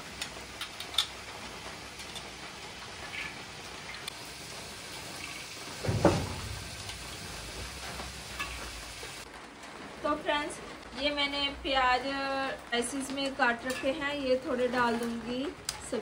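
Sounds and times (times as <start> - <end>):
vegetables sizzling in oil: 0.0 - 9.3
loud clatter: 5.8 - 8.6.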